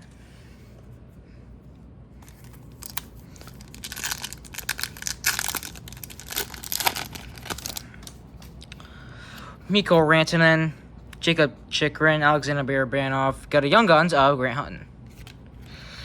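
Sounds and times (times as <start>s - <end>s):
plastic wrapper crackling and rustling: 2.2s - 8.8s.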